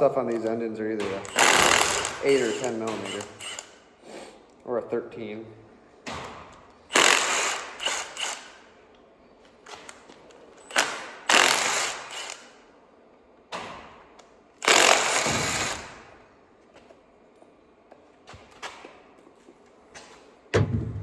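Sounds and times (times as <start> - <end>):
power tool spinning out bolts: 1.2 - 3.7, 6.9 - 8.5.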